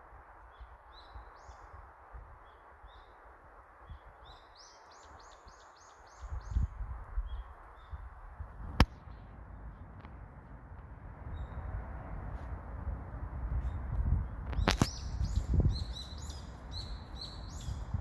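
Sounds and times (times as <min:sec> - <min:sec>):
sharp click: 0:08.7 - 0:09.0, 0:14.5 - 0:15.1
small bird chirping: 0:13.6 - 0:18.0
steady background hiss: 0:14.7 - 0:18.0.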